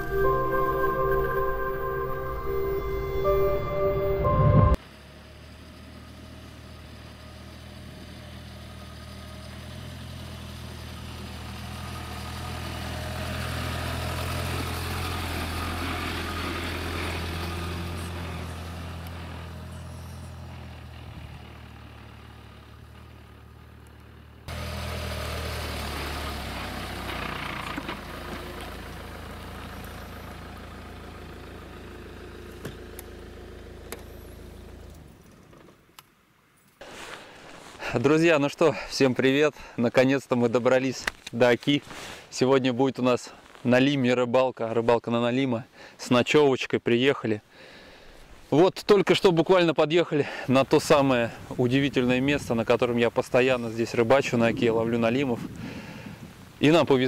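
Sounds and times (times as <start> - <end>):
off-road vehicle engine droning: 4.8 - 35.7.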